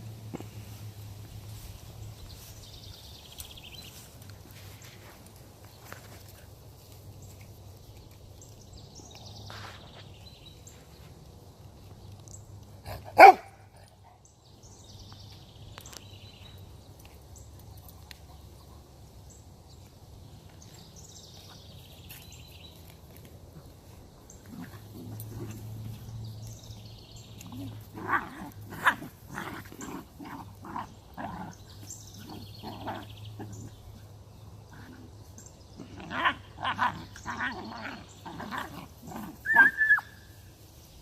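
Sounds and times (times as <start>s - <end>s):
puppy barking: 12.9s - 13.6s.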